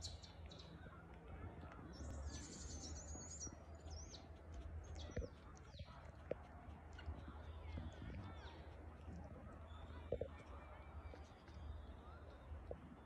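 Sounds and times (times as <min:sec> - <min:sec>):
faint bird chirping: 0:00.0 - 0:06.2
low steady rumble: 0:00.0 - 0:13.0.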